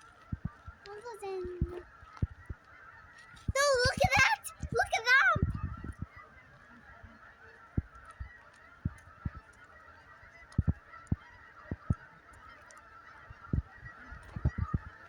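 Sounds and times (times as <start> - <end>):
flock of fowl chattering: 0.0 - 15.0
low thumps on microphone: 5.4 - 6.1, 10.6 - 12.0, 13.5 - 13.7, 14.3 - 14.9.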